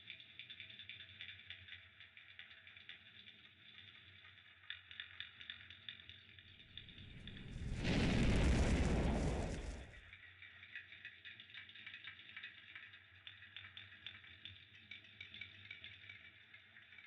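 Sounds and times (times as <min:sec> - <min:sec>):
fire crackling and popping: 0:06.5 - 0:10.1
rushing burst of flame: 0:06.8 - 0:10.0.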